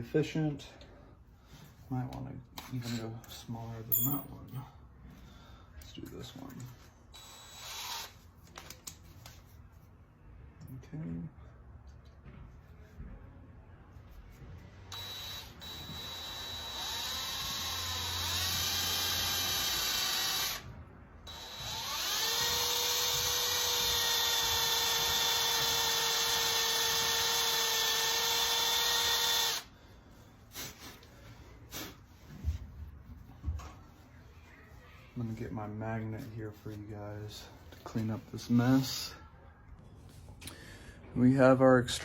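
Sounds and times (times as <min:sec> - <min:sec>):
cordless drill motor whine: 0:07.1 - 0:08.2, 0:14.9 - 0:20.7, 0:21.3 - 0:29.7.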